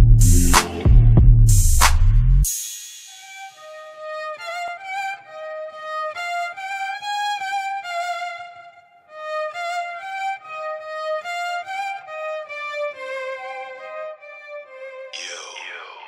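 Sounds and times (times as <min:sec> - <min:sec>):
violin melody: 0:03.4 - 0:15.2.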